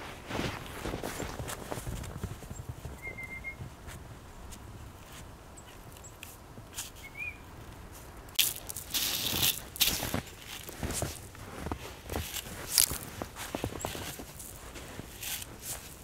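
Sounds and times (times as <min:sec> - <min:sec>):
footsteps crunching in snow: 0:00.0 - 0:03.0, 0:07.8 - 0:16.0.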